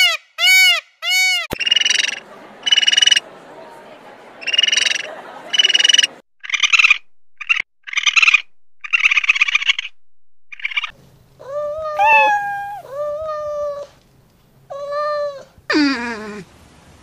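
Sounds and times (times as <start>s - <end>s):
cat meowing: 11.5s - 13.3s
rasping animal calls: 11.8s - 13.0s
animal call falling in pitch: 12.0s - 12.9s.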